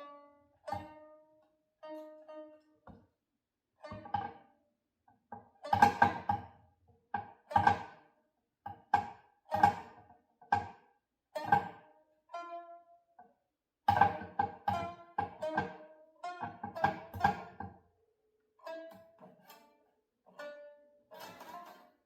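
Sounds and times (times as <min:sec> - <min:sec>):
plucked string instrument notes: 0:00.0 - 0:03.0, 0:03.8 - 0:04.6, 0:05.3 - 0:06.6, 0:07.2 - 0:08.1, 0:08.8 - 0:10.1, 0:11.4 - 0:13.3, 0:13.9 - 0:17.8, 0:18.6 - 0:22.0.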